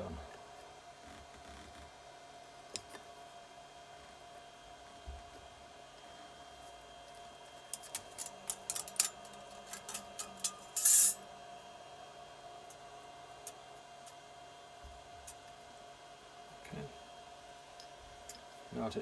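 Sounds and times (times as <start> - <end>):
metal engine parts clinking: 7.8 - 11.2
short metal scrape: 9.8 - 11.2.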